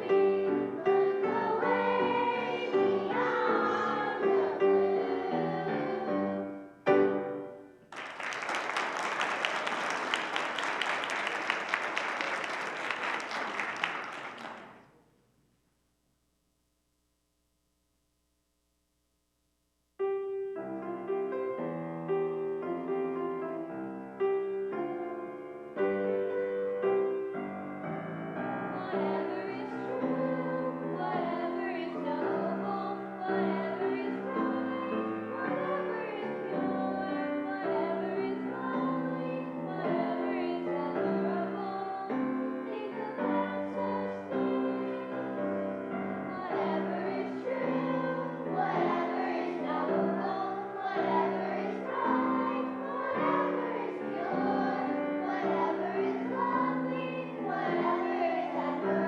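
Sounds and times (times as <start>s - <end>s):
voices singing with children: 0.0s - 6.5s, 28.7s - 59.0s
piano: 0.0s - 14.9s, 20.0s - 59.0s.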